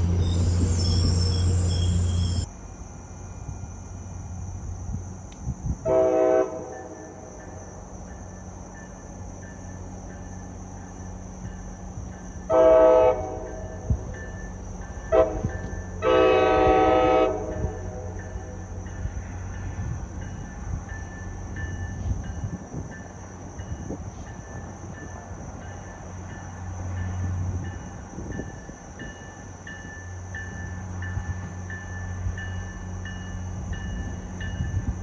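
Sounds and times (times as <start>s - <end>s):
train air horn blasts: 0.0s - 2.5s, 5.9s - 7.0s, 12.5s - 13.7s, 15.1s - 18.2s
train rumbling: 0.0s - 35.0s.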